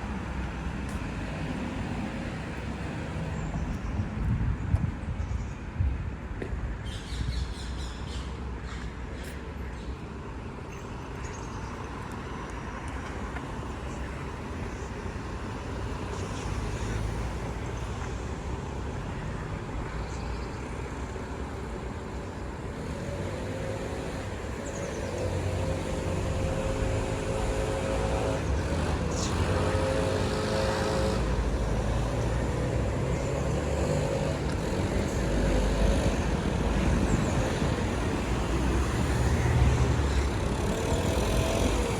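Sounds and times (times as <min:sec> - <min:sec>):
city street traffic: 0:00.0 - 0:41.9
vehicle passing: 0:22.8 - 0:41.9.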